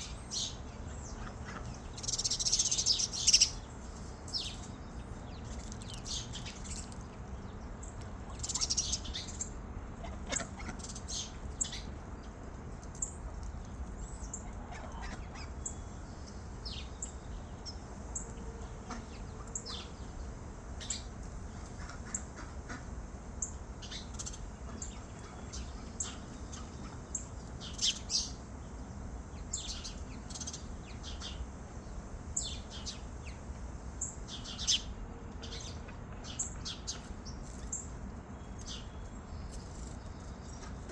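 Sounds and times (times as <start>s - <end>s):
low background noise: 0.0s - 40.9s
small birds chirping: 0.0s - 40.9s.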